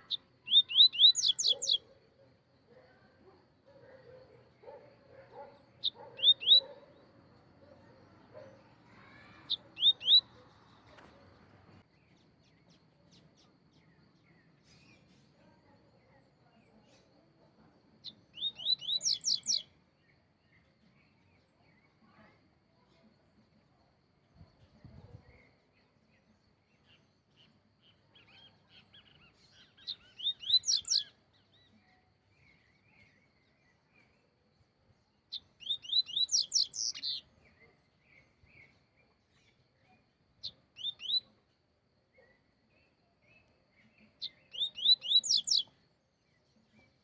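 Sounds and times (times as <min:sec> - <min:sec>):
soft bird twittering: 0:00.0 - 0:01.9, 0:03.8 - 0:07.0, 0:07.6 - 0:15.4, 0:18.0 - 0:19.7, 0:26.9 - 0:33.1, 0:35.3 - 0:39.6, 0:40.4 - 0:41.4, 0:43.3 - 0:45.8
songbird chirping: 0:00.0 - 0:47.0.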